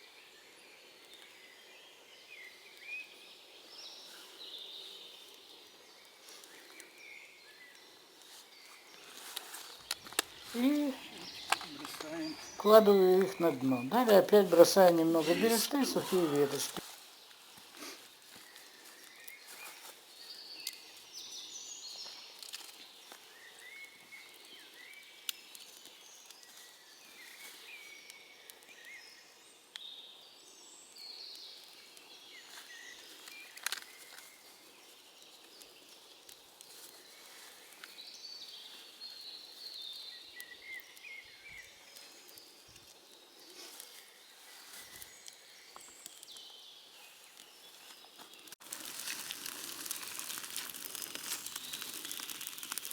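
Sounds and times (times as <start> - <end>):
small birds chirping: 0.0 - 52.9
sharp cracks: 48.5 - 52.9.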